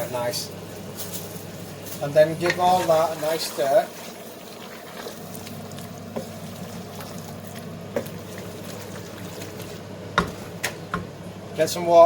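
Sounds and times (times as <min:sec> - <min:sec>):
curry bubbling while stirred: 0:01.6 - 0:11.2
spoon knocking pot: 0:10.1 - 0:11.1.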